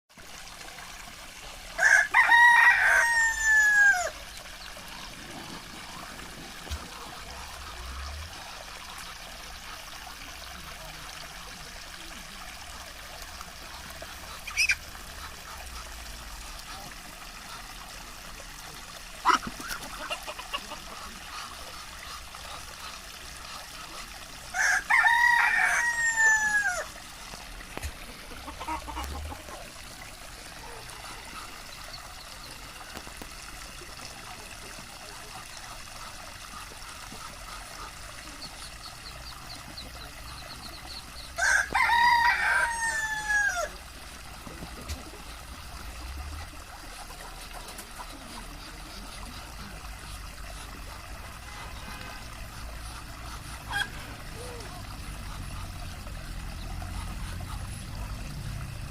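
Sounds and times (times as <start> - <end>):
rooster crowing: 1.8 - 4.1, 24.5 - 26.9, 41.4 - 43.7.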